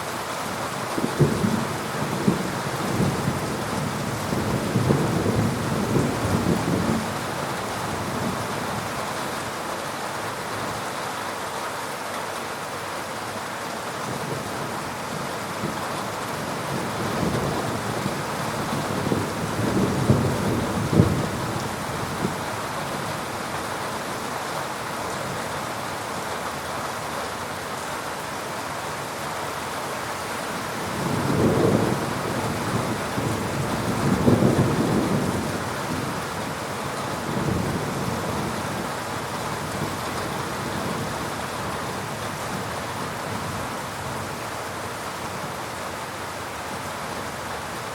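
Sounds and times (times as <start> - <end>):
heavy rain: 0.0 - 47.9.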